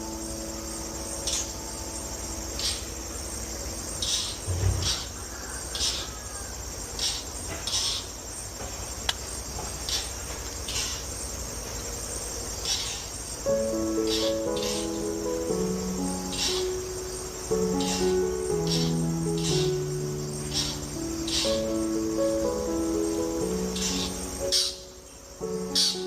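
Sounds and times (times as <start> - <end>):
crickets trilling: 0.0 - 26.0
low thump: 4.5 - 5.0.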